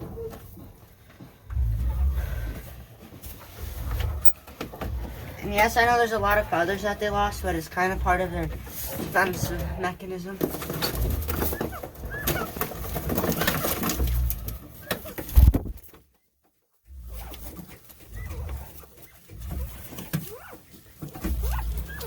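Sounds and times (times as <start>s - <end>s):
rustling and knocks: 0.0s - 22.0s
poultry cooing softly: 16.9s - 22.0s.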